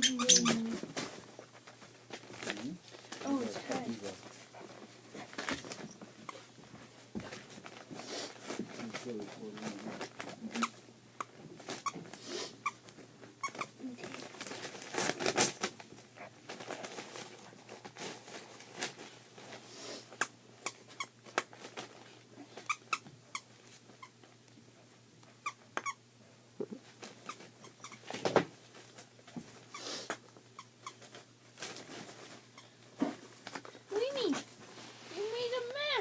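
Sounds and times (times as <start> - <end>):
toy squeaks: 0.0 - 0.8
wrapping paper crinkling: 13.8 - 19.6.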